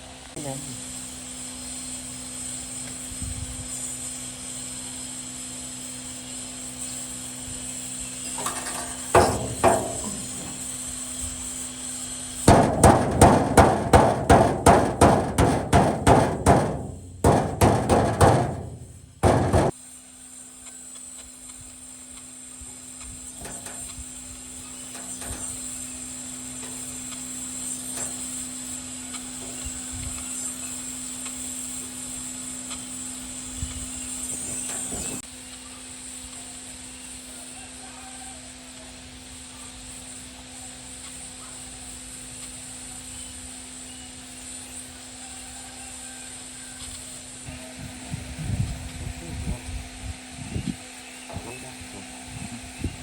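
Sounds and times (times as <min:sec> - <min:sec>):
hammer striking metal: 0:08.4 - 0:10.7, 0:12.5 - 0:19.8.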